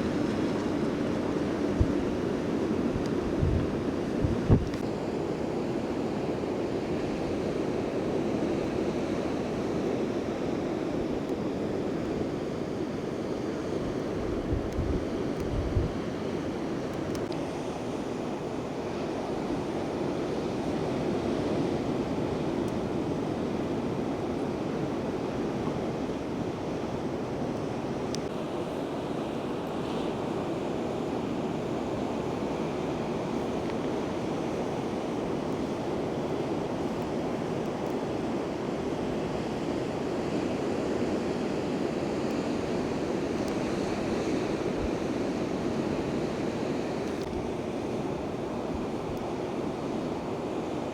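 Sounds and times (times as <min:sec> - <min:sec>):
wind buffeting microphone: 0:00.0 - 0:04.8, 0:13.8 - 0:16.2
ocean surf rushing: 0:00.0 - 0:50.9.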